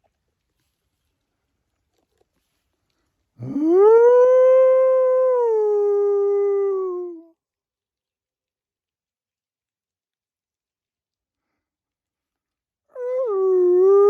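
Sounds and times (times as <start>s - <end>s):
imitation wolf howl: 3.4s - 7.3s, 12.9s - 14.0s.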